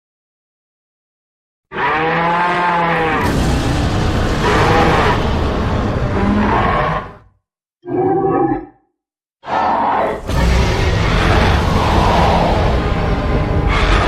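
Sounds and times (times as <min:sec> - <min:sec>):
monster roar: 0:01.7 - 0:08.8, 0:09.4 - 0:14.0.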